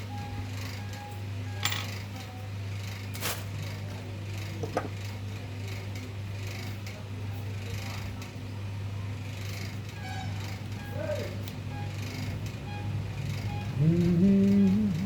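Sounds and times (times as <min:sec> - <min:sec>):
light metallic clinks: 0:01.6 - 0:02.0.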